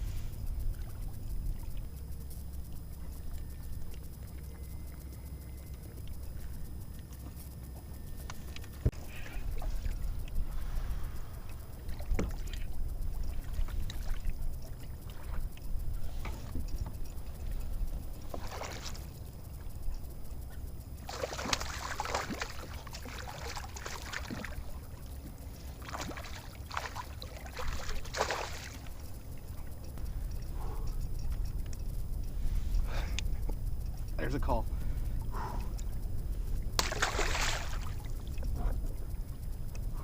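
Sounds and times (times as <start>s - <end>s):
steady low rumble: 0.0s - 40.0s
water splashing against kayak: 18.2s - 19.6s, 21.0s - 29.8s, 36.7s - 39.4s.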